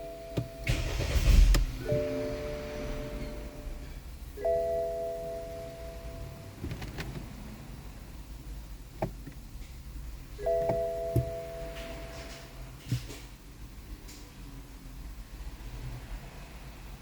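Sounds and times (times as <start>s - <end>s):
electronic chime chord: 1.8s - 6.5s.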